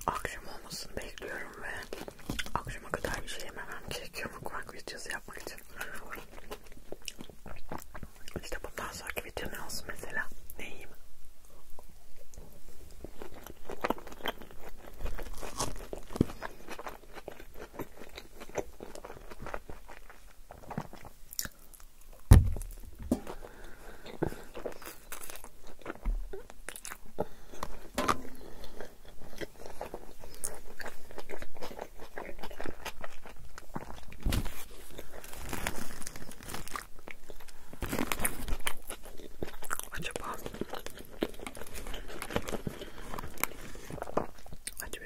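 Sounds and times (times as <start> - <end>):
close chewing with wet smacks: 1.1 - 4.3, 5.3 - 9.2, 11.7 - 22.3, 23.6 - 35.2, 36.8 - 45.0
loud knock: 22.3 - 23.2.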